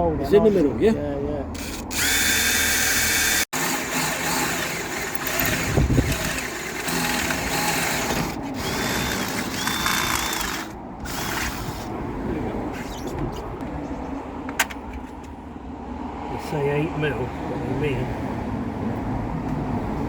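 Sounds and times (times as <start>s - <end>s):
power drill whining: 1.6s - 11.9s.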